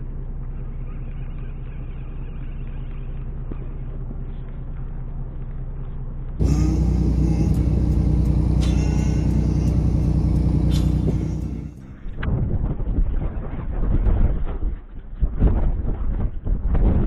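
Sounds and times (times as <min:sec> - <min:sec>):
boat engine rumbling: 0:06.4 - 0:12.2.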